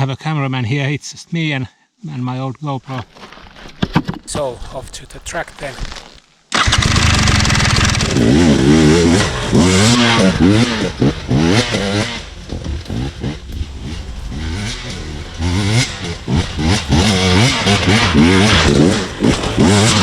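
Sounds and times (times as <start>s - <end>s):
dirt bike engine revving: 4.3s - 20.0s.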